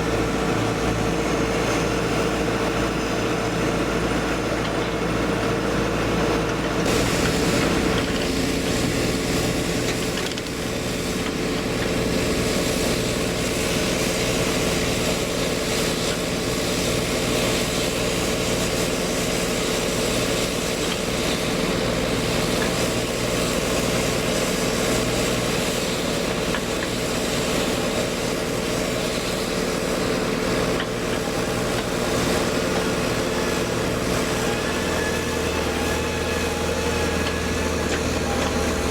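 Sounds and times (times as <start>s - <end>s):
excavator diesel engine running: 0.0s - 38.9s
hiss: 6.9s - 11.3s.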